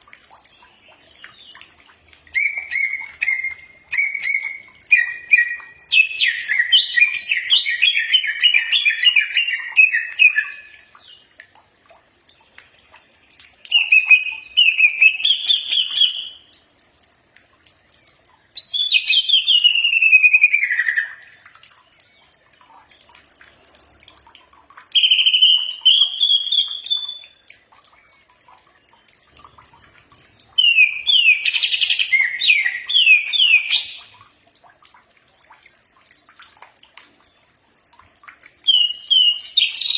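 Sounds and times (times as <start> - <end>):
bird singing warbled phrases: 0.2 - 11.3, 13.6 - 16.6, 17.9 - 23.2, 24.9 - 34.3, 38.6 - 39.9.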